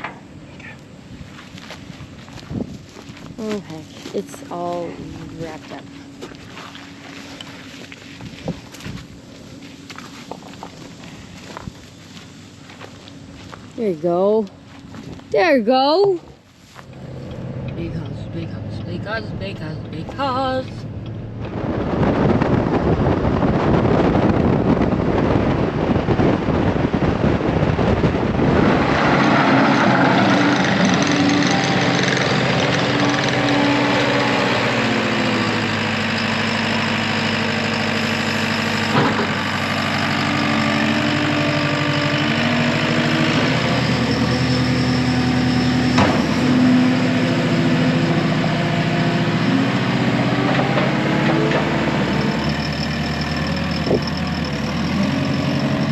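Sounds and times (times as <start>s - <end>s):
diesel loader engine revving: 16.8s - 55.9s
rough rushing noise: 20.8s - 55.9s.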